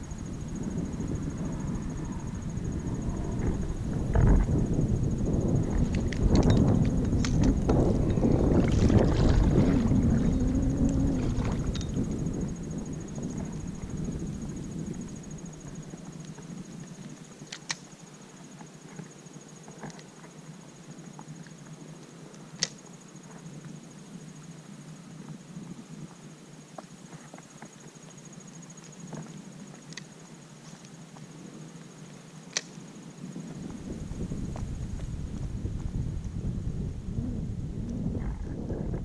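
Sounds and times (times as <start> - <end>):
wind buffeting microphone: 0.0 - 17.3, 33.2 - 39.0.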